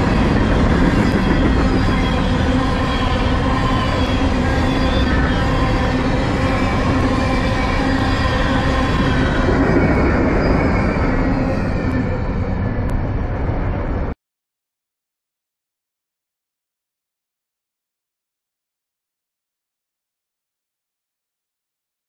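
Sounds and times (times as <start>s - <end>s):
wheels squealing: 0.0s - 14.0s
freight train wheels rumbling: 0.0s - 14.2s.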